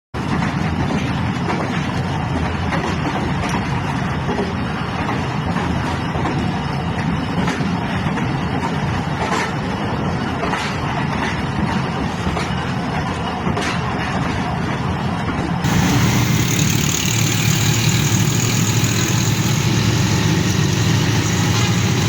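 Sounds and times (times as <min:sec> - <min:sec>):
vehicle rumbling: 0:15.6 - 0:22.0.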